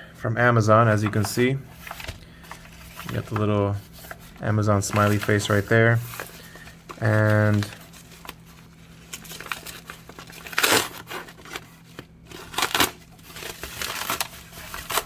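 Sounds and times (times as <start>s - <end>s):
cardboard box crinkling and rustling: 1.1s - 15.0s
cardboard tearing rip: 9.1s - 15.0s.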